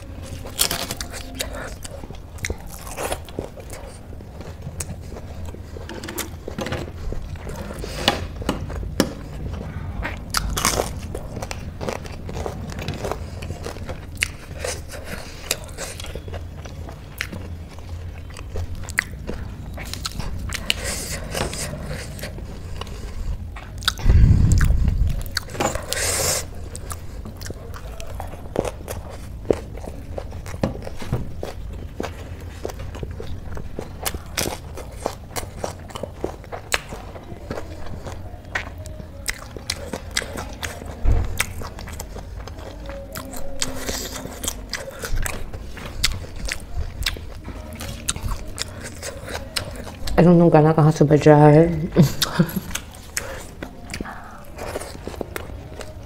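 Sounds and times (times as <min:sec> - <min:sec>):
chewing with crunches: 0:00.0 - 0:56.0
low thud: 0:24.0 - 0:25.2.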